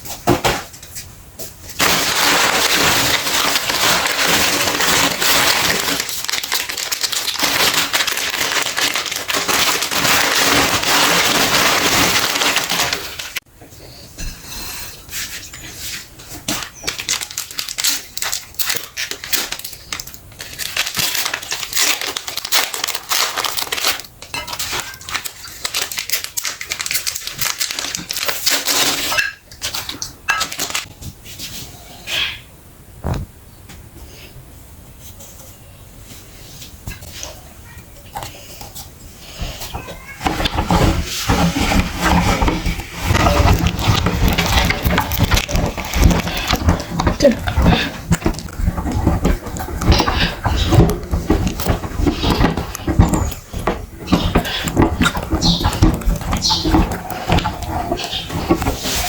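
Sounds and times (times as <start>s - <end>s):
crackling and squishing: 1.5s - 13.5s, 15.0s - 31.6s, 35.0s - 59.0s
grinder crushing and crackling: 1.8s - 13.5s, 16.2s - 30.9s, 39.3s - 59.0s.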